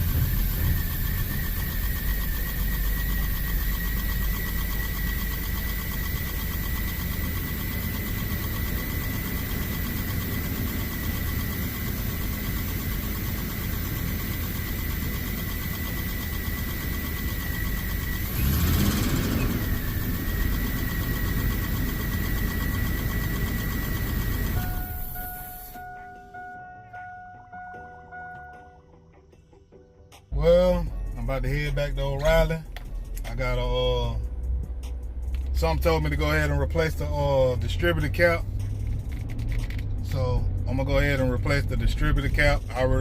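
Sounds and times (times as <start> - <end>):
thin high whine: 0.0 - 28.0
van engine idling: 0.0 - 28.6.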